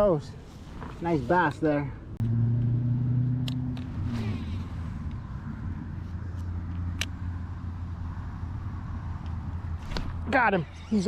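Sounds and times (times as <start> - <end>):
road traffic rumble: 0.0 - 11.0
vehicle hum dropping in pitch: 2.2 - 8.8.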